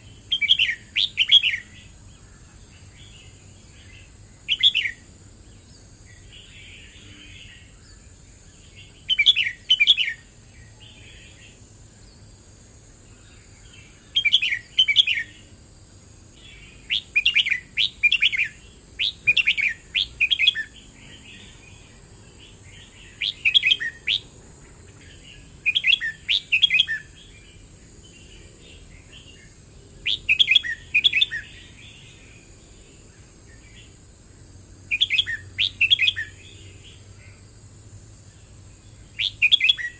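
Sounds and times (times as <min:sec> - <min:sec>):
faint bird twittering: 0:00.0 - 0:34.1, 0:34.8 - 0:37.6, 0:38.2 - 0:39.9
bird singing whistled phrases: 0:00.3 - 0:01.7, 0:04.5 - 0:05.0, 0:09.0 - 0:10.2, 0:14.1 - 0:15.4, 0:16.9 - 0:20.7, 0:23.0 - 0:24.3, 0:25.6 - 0:27.1, 0:30.0 - 0:31.6, 0:34.9 - 0:36.4, 0:39.2 - 0:39.9.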